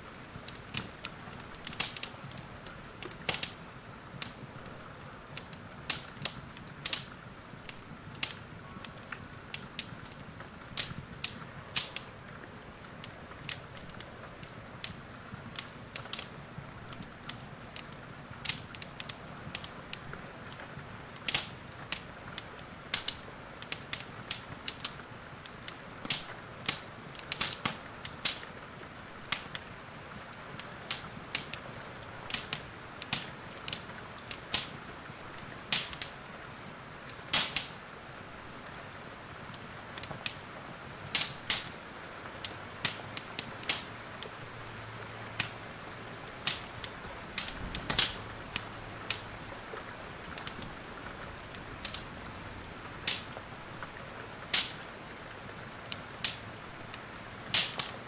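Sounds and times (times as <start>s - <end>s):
rain hissing: 0.0s - 58.0s
wood fire crackling and popping: 0.0s - 58.0s.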